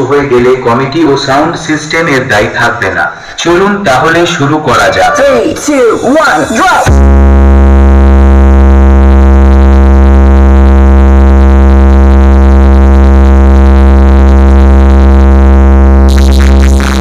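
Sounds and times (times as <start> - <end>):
distorted low bass tone: 5.8 - 17.0.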